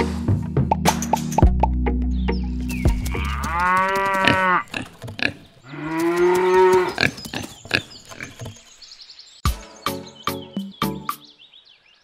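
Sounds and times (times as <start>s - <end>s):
background music: 0.0s - 7.5s, 9.4s - 11.4s
cow mooing: 3.1s - 4.7s, 5.7s - 7.0s.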